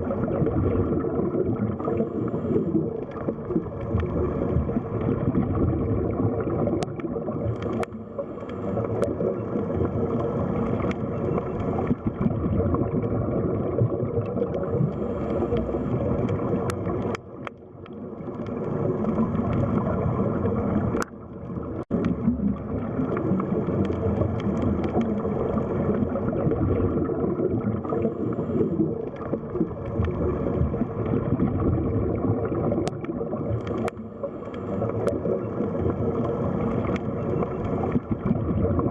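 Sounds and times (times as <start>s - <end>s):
underwater rush of water: 0.0s - 38.9s.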